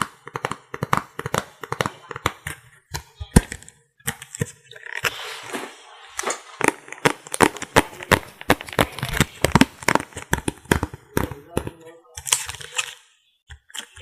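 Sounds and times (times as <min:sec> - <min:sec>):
makeup items tapping and clicking: 0:00.0 - 0:04.6, 0:06.6 - 0:12.8.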